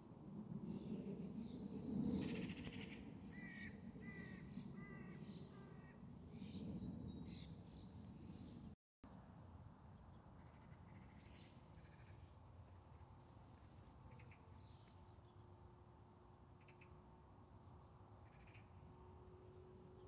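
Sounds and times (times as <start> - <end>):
faint outdoor background noise: 0.0 - 20.0
harsh crow-like calls: 10.4 - 12.3.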